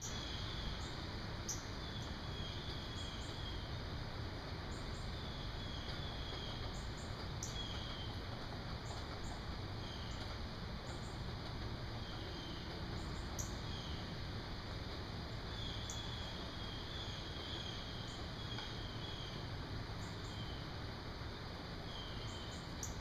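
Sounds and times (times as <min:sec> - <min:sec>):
low outdoor hum: 0:00.0 - 0:23.0
birds chirping: 0:15.5 - 0:20.7.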